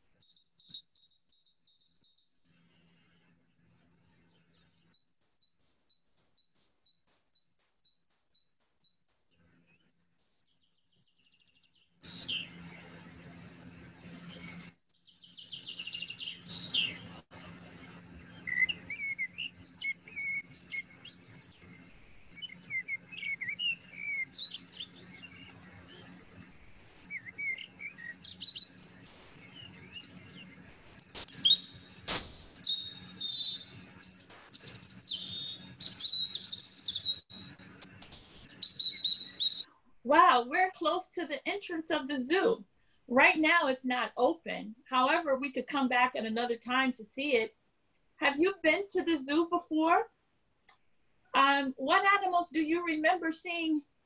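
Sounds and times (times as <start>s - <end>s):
songbirds singing: 0.1s - 39.7s.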